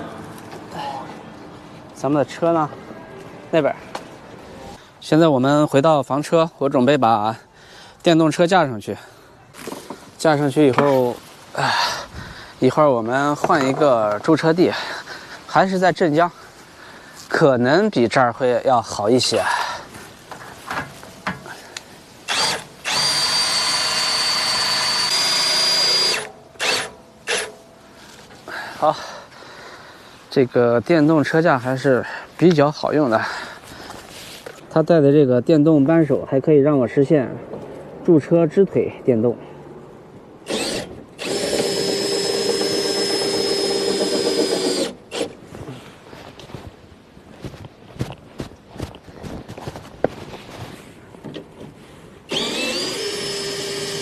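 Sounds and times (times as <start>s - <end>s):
electric wrench motor whine: 22.3s - 27.5s, 40.5s - 45.4s, 52.3s - 54.0s.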